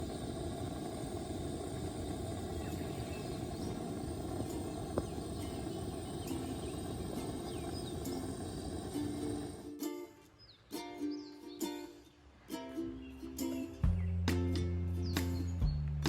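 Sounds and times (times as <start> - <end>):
faint bird chirps: 0.0 - 9.6
low outdoor rumble: 0.0 - 9.7.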